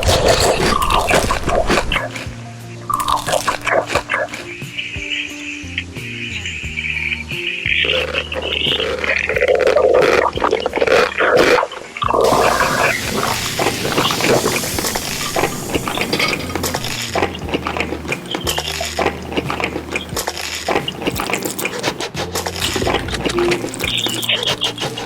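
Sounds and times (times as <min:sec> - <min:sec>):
cutlery clinking on dishes: 0:12.2 - 0:17.0.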